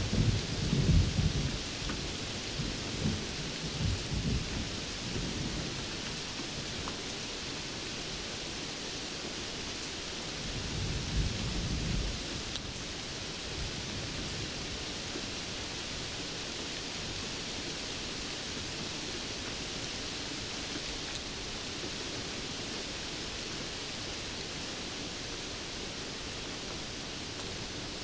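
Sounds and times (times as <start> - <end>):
low rumble of thunder: 0.0 - 6.8, 10.4 - 16.2
steady rainfall: 0.0 - 28.0.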